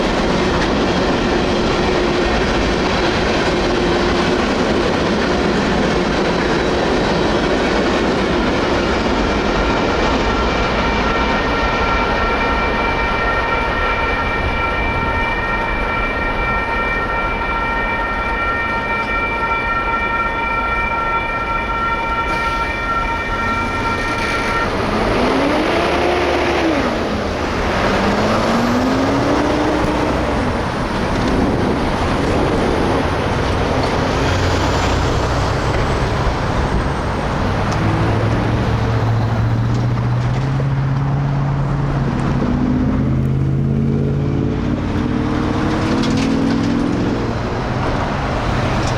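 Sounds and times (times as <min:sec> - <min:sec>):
railroad crossing bell ringing: 0:00.0 - 0:42.1, 0:43.3 - 0:48.9
vehicles pulling away: 0:22.3 - 0:48.9.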